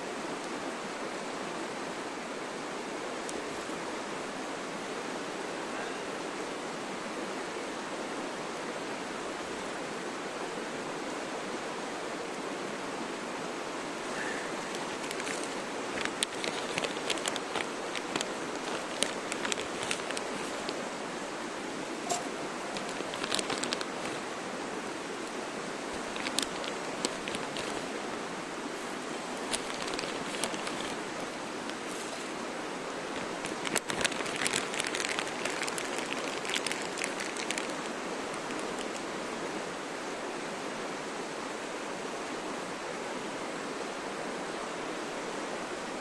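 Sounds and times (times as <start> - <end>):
campfire crackling and popping: 14.2 - 20.9, 22.0 - 24.3, 25.2 - 28.0, 28.9 - 32.0, 33.0 - 39.1.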